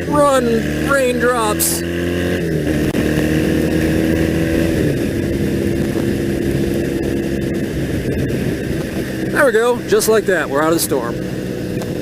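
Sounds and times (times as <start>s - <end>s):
motorcycle engine running: 0.0s - 12.0s
wind rush: 2.4s - 9.9s.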